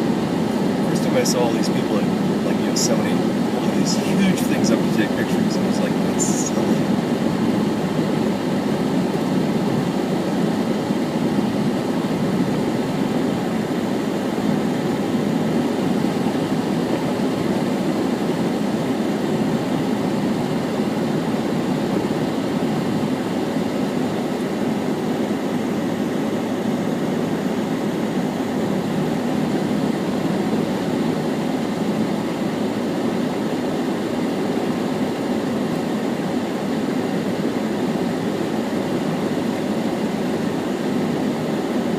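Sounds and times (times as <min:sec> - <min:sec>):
low rumble inside car: 0:00.4 - 0:08.3.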